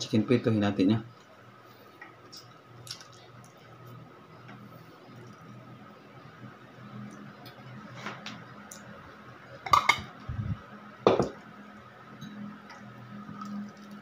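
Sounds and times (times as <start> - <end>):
low hum: 3.6 - 14.0.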